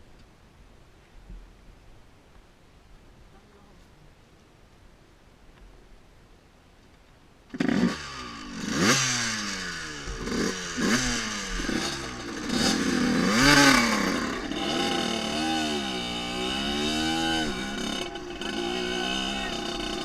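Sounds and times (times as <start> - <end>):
dirt bike engine revving: 7.5 - 20.0.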